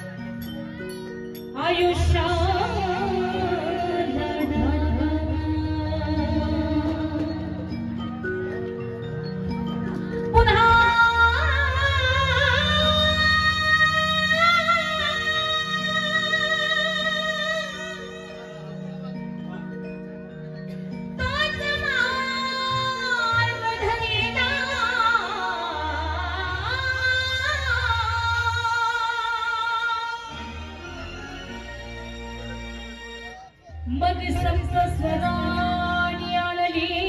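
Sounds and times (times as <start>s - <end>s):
instrumental backing chords: 0.0s - 37.0s
woman singing with vibrato: 1.6s - 7.6s, 10.3s - 18.3s, 21.2s - 30.8s, 33.8s - 37.0s.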